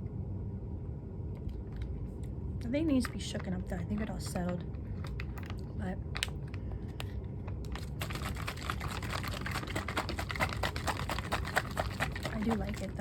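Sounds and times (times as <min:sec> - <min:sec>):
plastic bottle being shaken: 0:07.0 - 0:13.0.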